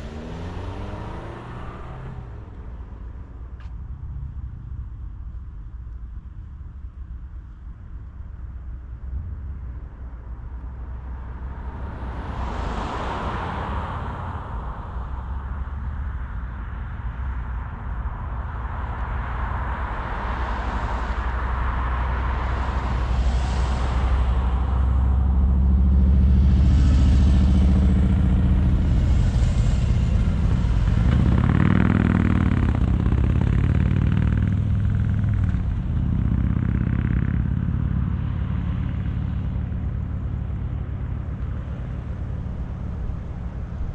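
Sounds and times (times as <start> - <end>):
passing traffic whooshes: 0.0 - 4.6, 9.6 - 43.9
other vehicle engine: 0.0 - 5.0, 19.8 - 43.9
car engine and tyre rumble: 0.0 - 43.9.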